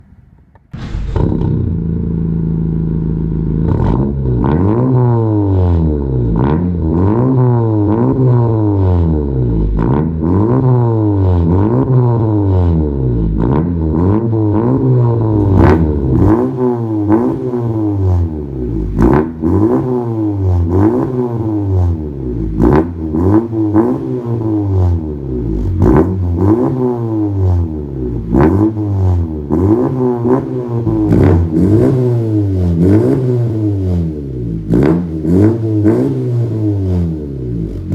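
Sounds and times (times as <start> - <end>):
sharp exhaust cracks: 0.3 - 4.1, 15.3 - 19.3
car engine revving: 0.7 - 37.9.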